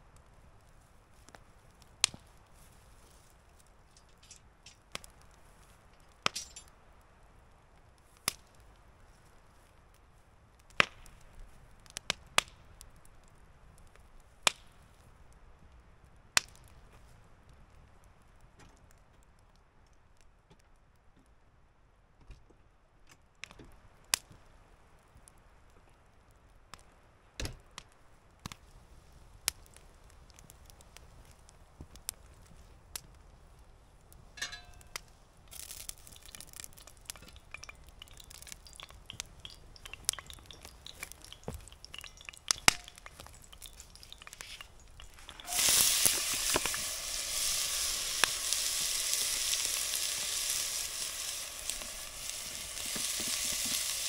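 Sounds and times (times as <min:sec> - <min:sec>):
scattered clicks and crackles: 0:00.7 - 0:06.8, 0:34.1 - 0:54.0
food sizzling in a pan: 0:35.5 - 0:54.0.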